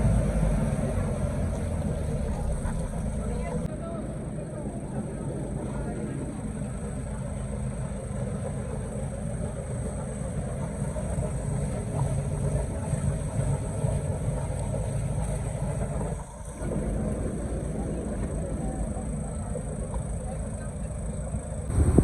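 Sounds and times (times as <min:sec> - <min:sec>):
boat engine droning: 0:00.0 - 0:22.0
water noise: 0:00.0 - 0:22.0
wind noise: 0:21.7 - 0:22.0.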